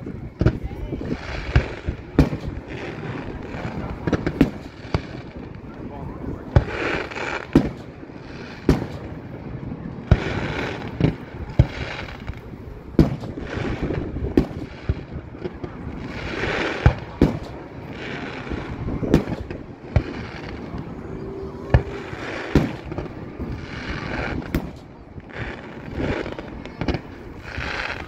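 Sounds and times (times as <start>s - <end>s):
fireworks booming: 0.0s - 28.0s
fireworks hiss: 6.5s - 9.2s, 10.1s - 21.1s, 21.7s - 28.0s.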